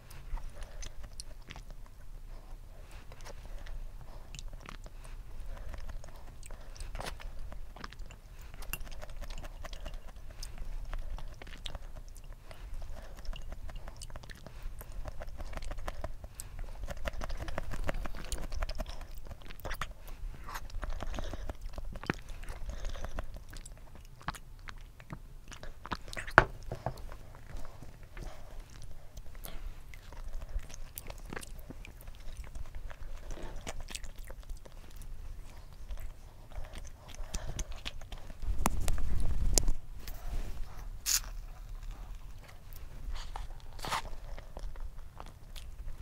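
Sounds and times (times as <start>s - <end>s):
wet chewing: 0.0s - 46.0s.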